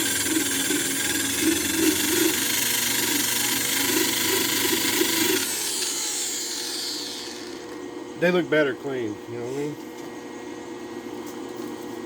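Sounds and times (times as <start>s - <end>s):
wire wheel grinder whining: 0.0s - 7.8s.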